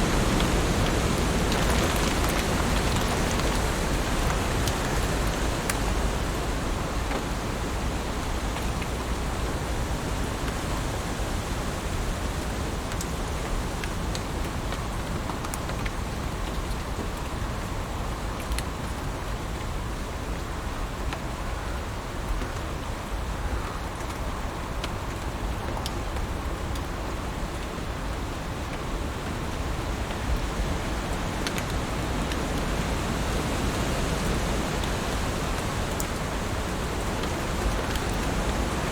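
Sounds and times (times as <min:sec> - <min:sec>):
heavy rain hissing: 0:00.0 - 0:13.7, 0:29.0 - 0:38.9
raindrop ticks: 0:00.1 - 0:06.0, 0:12.8 - 0:17.4, 0:18.3 - 0:19.0, 0:30.0 - 0:32.9, 0:33.8 - 0:38.9.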